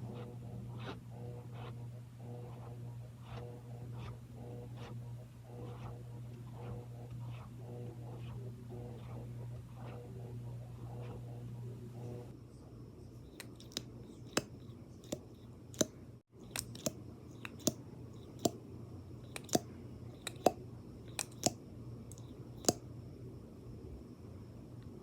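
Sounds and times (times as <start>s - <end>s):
low steady hum: 0.0s - 25.0s
taps and clicks on makeup items: 13.4s - 18.6s, 19.3s - 22.8s.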